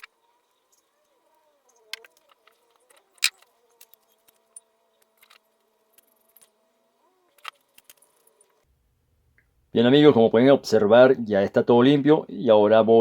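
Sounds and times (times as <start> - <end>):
small metal parts clicking and knocking: 0.0 - 8.7.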